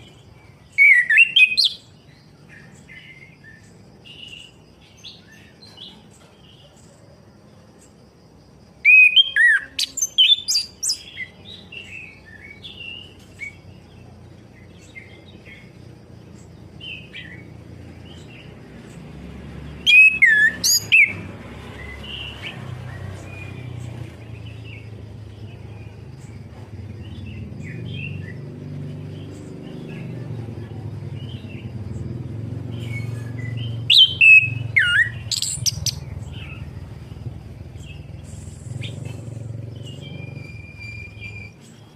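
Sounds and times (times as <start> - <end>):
thrush singing whistled phrases: 0.7 - 1.9, 8.8 - 11.1, 19.8 - 21.2, 32.8 - 36.8, 39.8 - 41.7
steady low hum: 23.1 - 41.9.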